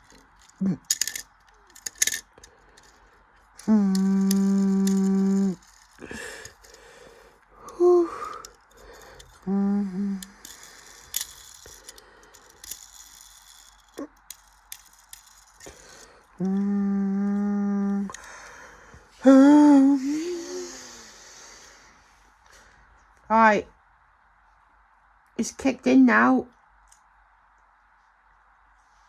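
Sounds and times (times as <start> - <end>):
machine clicks and rattles: 0.0 - 6.8
washing machine motor humming: 3.2 - 11.2.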